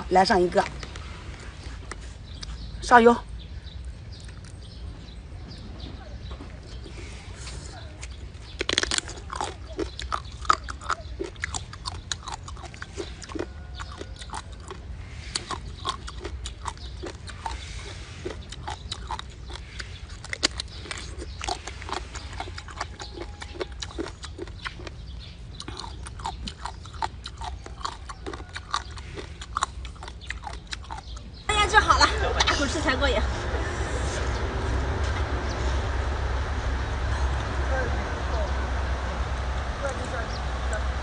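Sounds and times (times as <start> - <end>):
steady low hum: 0.0 - 41.0
wet chewing and smacking: 0.6 - 2.8, 3.7 - 4.8, 6.6 - 31.5.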